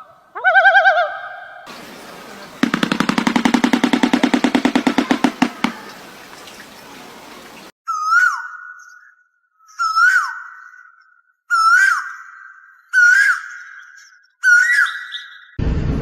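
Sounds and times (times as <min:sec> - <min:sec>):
bird rapid rattle: 0:01.7 - 0:07.7
steady background hiss: 0:01.7 - 0:07.7.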